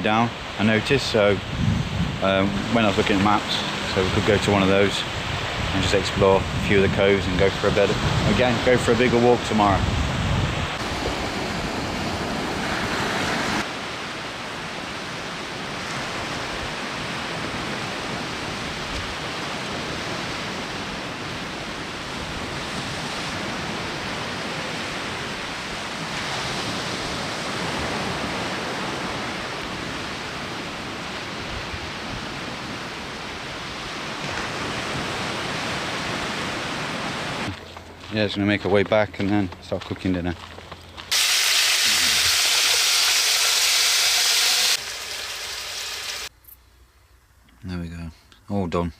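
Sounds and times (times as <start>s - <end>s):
sea waves washing on shore: 0.0s - 37.6s.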